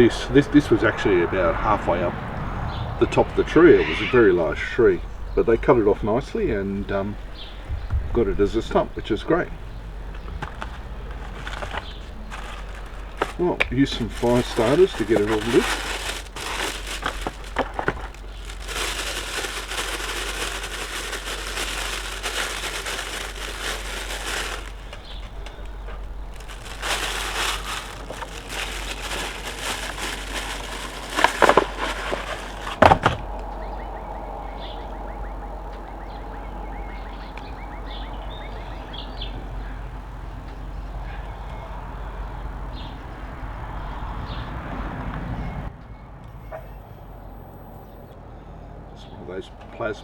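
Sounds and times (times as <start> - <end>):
wrappers crinkling and tearing: 10.5 - 33.2.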